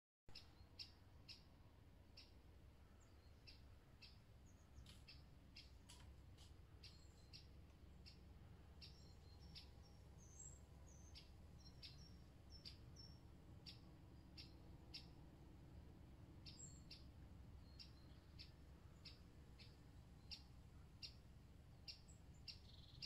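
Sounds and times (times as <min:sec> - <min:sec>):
faint high bird chirps: 0:00.3 - 0:23.0
low steady rumble: 0:00.3 - 0:23.0.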